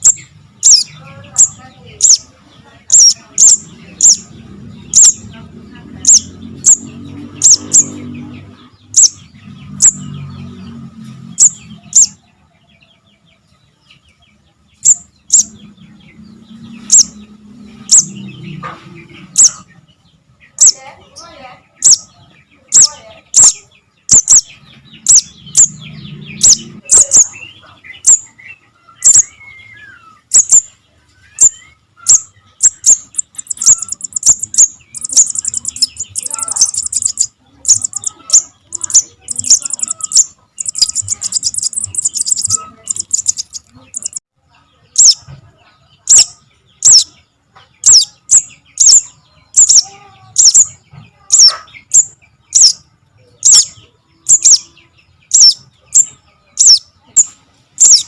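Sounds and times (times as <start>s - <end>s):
bird calling with high chips: 0.0s - 2.3s, 2.9s - 4.3s, 4.9s - 5.3s, 6.0s - 8.1s, 8.8s - 10.3s, 11.4s - 12.2s, 17.8s - 18.2s, 20.5s - 44.2s, 45.0s - 45.2s, 46.1s - 47.2s, 47.8s - 58.0s.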